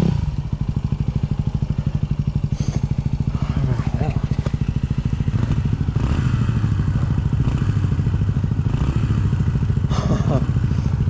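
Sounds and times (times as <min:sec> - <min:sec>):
dirt bike engine idling: 0:00.0 - 0:11.0.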